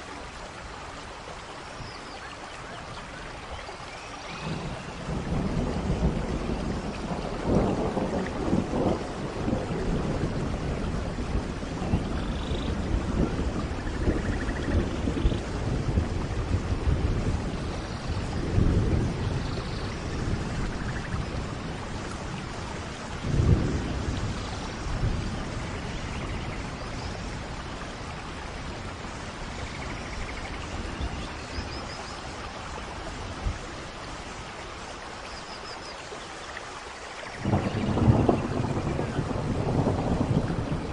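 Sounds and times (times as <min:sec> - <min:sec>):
steady rain: 0:00.0 - 0:40.9
thunder rolling: 0:04.4 - 0:22.3, 0:23.2 - 0:27.6, 0:37.4 - 0:40.9.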